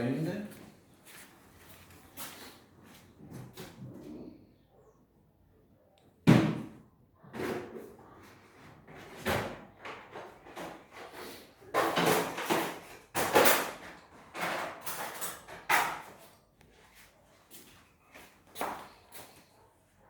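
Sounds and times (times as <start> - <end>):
hard objects knocking and scraping: 8.9 - 16.2.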